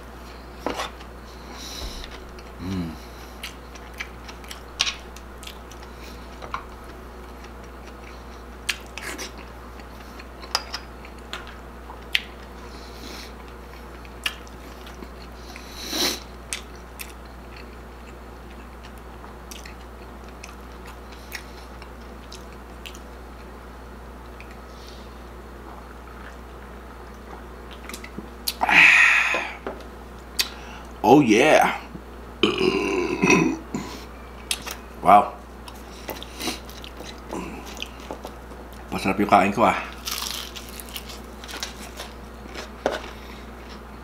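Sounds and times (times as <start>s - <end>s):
steady low hum: 0.0s - 44.0s
crunchy chewing and biting: 0.8s - 23.5s, 35.6s - 38.9s, 39.8s - 44.0s.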